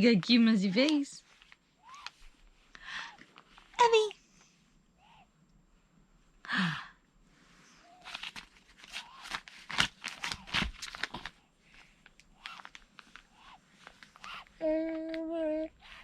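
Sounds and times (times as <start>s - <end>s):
breathy sigh: 6.4s - 7.0s.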